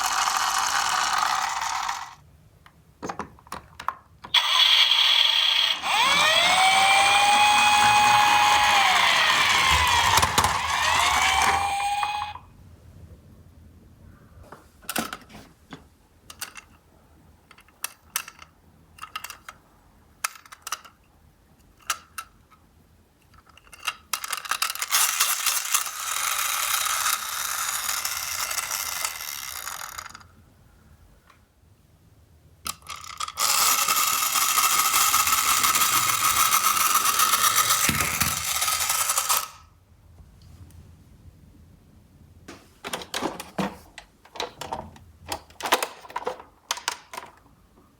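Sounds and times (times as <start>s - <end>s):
toy car mechanism whirring: 0.0s - 2.2s, 4.2s - 12.4s, 17.6s - 19.6s, 23.2s - 30.3s, 32.7s - 39.7s
small plastic clicks and knocks: 2.6s - 4.4s, 42.8s - 47.5s
toy electronic siren wailing: 4.3s - 12.4s.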